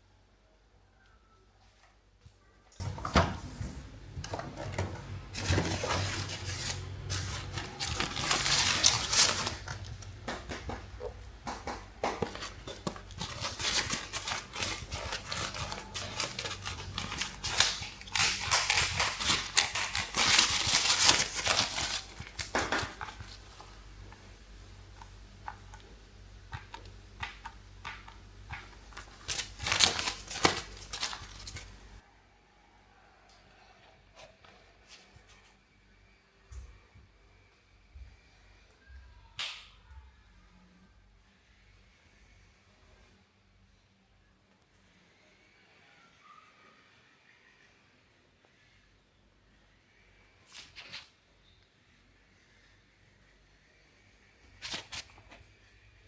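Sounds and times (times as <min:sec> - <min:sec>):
plastic toys clicking and clattering: 0:04.2 - 0:23.6, 0:26.5 - 0:31.8.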